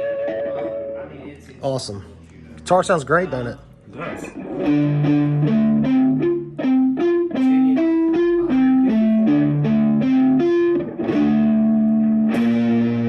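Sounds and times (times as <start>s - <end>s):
electric guitar chord ringing: 0.0s - 1.2s, 4.3s - 13.0s
electric guitar picked notes: 0.0s - 1.2s, 4.3s - 13.0s.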